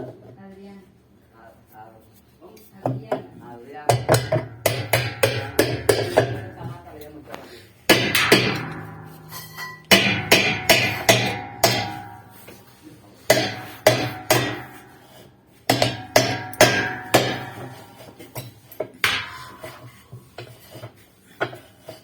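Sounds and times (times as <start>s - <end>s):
hammer striking metal: 4.0s - 7.1s, 7.9s - 20.5s.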